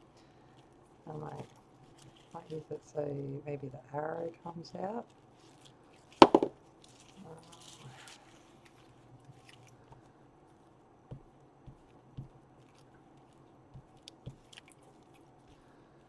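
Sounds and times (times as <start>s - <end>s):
paper rustling: 5.1s - 9.8s
soft knocks on table: 6.2s - 6.5s.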